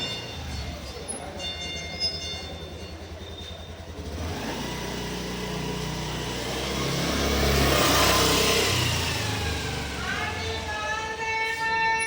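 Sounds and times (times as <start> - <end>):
motor vehicle passing: 3.1 - 11.2.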